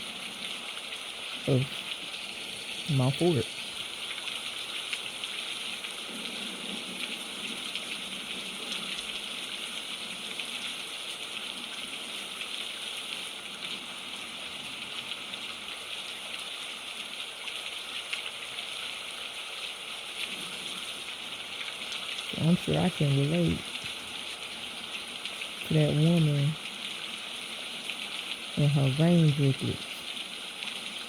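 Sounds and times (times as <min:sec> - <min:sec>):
heavy rain drumming: 0:01.4 - 0:03.7.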